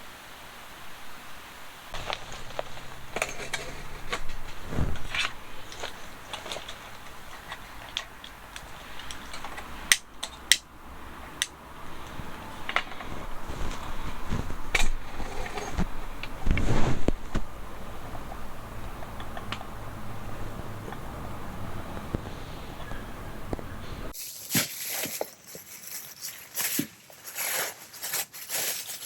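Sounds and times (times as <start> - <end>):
hard objects clicking and knocking: 2.0 - 10.7, 11.3 - 21.2.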